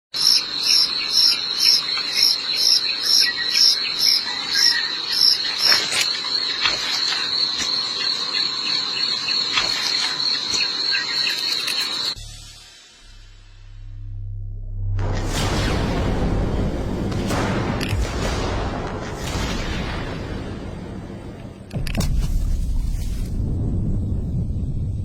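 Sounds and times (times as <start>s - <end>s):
insect chirps: 0.1s - 12.8s
insect high-pitched trill: 0.2s - 12.2s.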